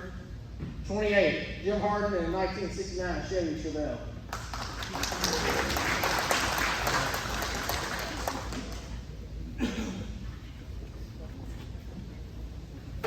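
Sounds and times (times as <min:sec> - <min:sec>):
crowd applauding: 0:04.3 - 0:09.1.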